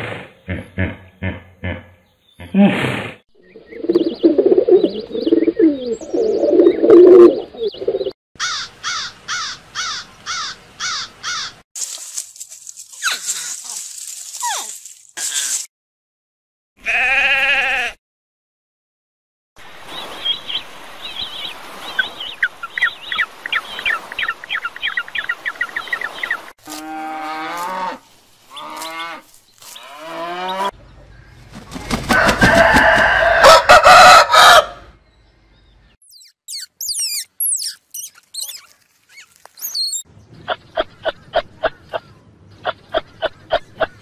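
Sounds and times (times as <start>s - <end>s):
rooster crowing: 32.1s - 34.9s
high chirps: 36.0s - 40.1s.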